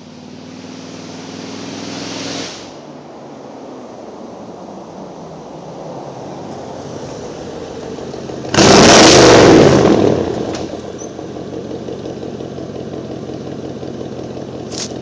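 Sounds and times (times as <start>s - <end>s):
car engine revving: 0.0s - 2.9s, 6.7s - 15.0s.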